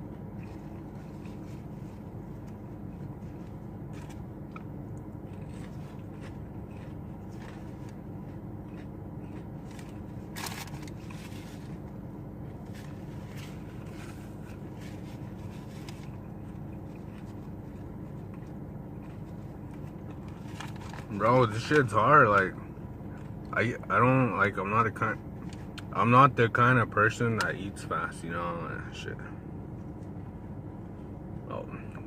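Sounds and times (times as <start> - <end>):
chewing and crunching food: 0.0 - 21.9
steady low hum: 0.0 - 32.0.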